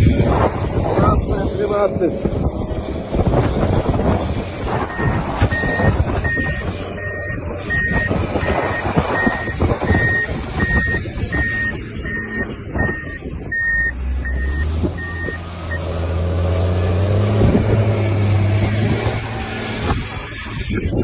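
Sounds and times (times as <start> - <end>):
diesel engine drone: 0.0 - 21.0
reversing alarm beeping: 4.9 - 15.8.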